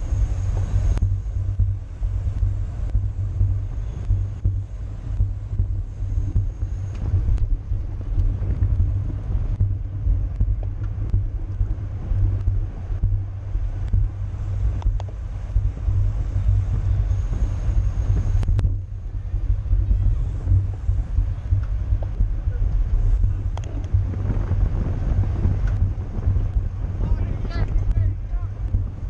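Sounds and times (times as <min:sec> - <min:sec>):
wind buffeting microphone: 0:00.0 - 0:29.0
faint clicks: 0:14.7 - 0:15.6, 0:21.5 - 0:24.0, 0:25.6 - 0:26.6.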